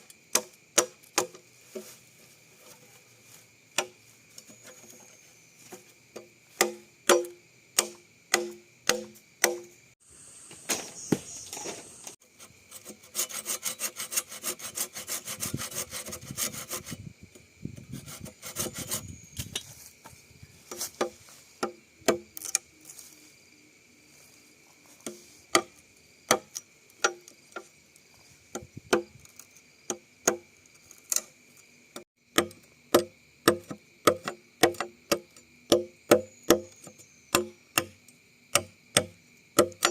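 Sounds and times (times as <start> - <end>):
hollow knocks on bamboo: 0.3 - 2.0, 5.7 - 9.7, 25.0 - 27.7, 28.5 - 29.2, 32.3 - 39.9
sawing bamboo: 6.6 - 9.6, 11.6 - 17.1, 17.8 - 19.2.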